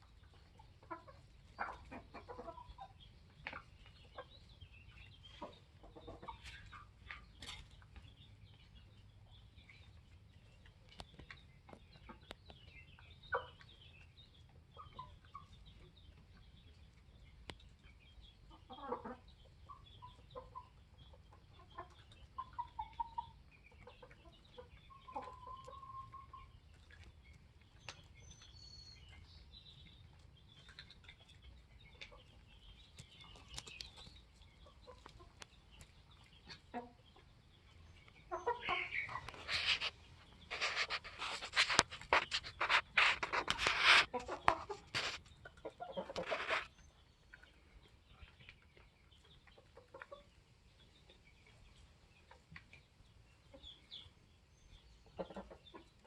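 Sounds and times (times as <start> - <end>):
chickens clucking softly: 0.0 - 56.0
rustling and scuffling: 39.1 - 45.3, 46.1 - 46.7.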